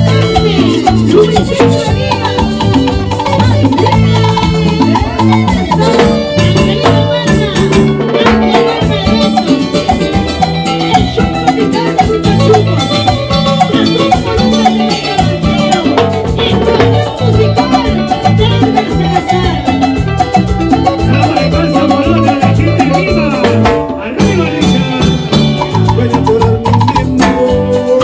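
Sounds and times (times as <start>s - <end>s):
bass line: 0.0s - 28.0s
fast percussion: 0.0s - 28.0s
latin dance band playing: 0.0s - 28.0s.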